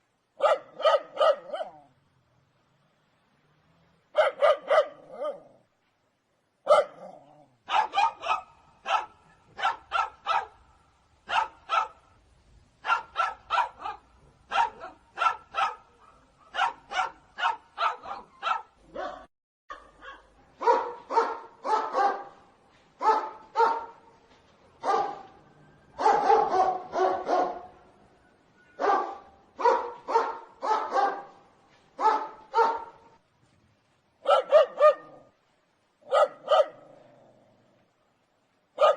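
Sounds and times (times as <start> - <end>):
dog barking: 0.4 - 1.9, 4.2 - 5.5, 6.6 - 10.6, 11.3 - 12.0, 12.8 - 22.4, 23.0 - 24.0, 24.8 - 25.4, 26.0 - 27.7, 28.8 - 31.4, 32.0 - 33.2, 34.2 - 35.3, 36.0 - 36.9.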